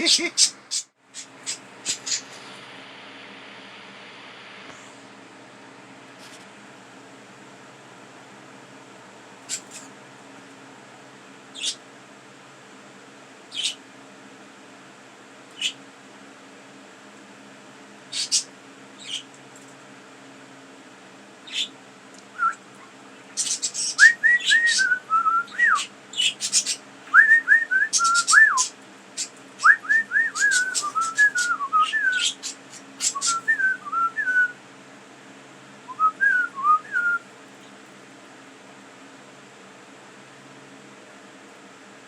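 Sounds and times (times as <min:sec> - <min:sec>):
budgerigar warbling: 0:18.1 - 0:19.3.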